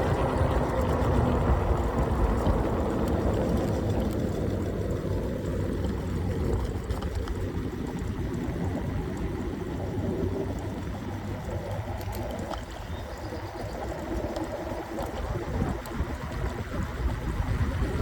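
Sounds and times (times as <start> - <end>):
wind rumble and road noise: 0.0 - 18.0.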